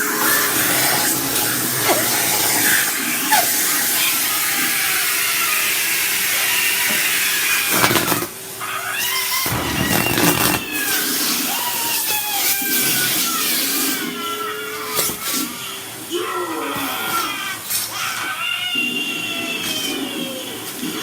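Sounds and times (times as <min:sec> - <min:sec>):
vacuum cleaner running: 0:00.0 - 0:08.5, 0:09.4 - 0:11.0.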